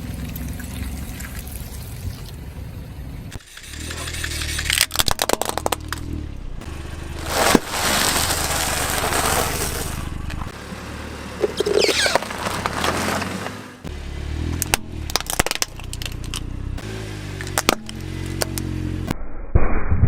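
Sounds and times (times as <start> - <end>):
car engine running low: 0.0 - 19.1
loud crack: 3.4 - 10.5
tyre crushing objects: 6.6 - 10.5, 11.4 - 13.6.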